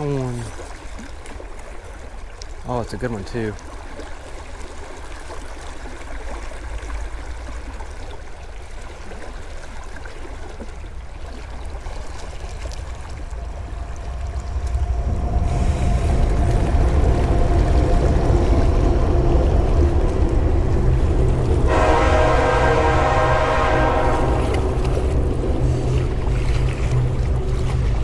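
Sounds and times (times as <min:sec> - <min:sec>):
creek water gurgling: 0:00.0 - 0:28.0
passing train rumble: 0:12.3 - 0:28.0.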